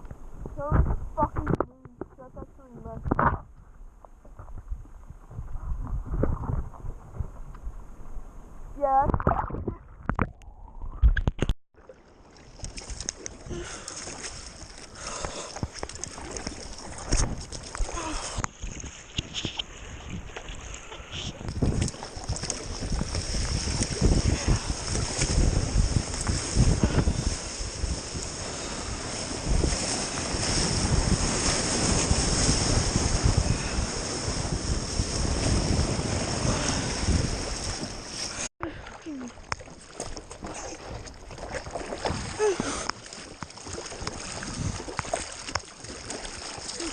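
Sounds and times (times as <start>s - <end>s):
wind buffeting microphone: 0.0s - 11.3s, 13.1s - 38.5s, 39.4s - 46.9s
water rushing and splashing: 11.8s - 46.9s
ocean surf: 22.6s - 39.4s.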